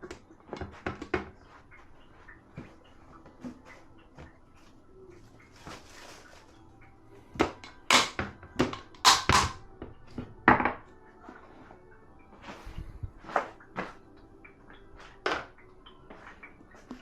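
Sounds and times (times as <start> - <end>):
dishes clinking and clattering: 7.4 - 9.6.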